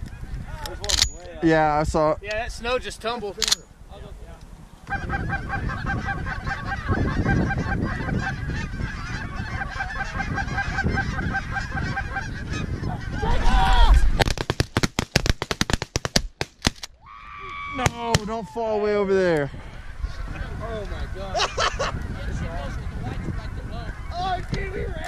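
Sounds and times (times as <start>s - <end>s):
geese honking: 4.9s - 13.6s, 17.6s - 25.0s
shotgun blasts: 17.8s - 18.4s.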